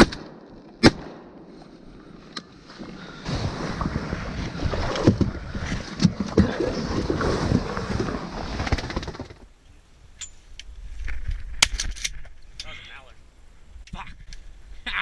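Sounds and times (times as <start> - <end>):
water splashing and sloshing: 2.5 - 9.3.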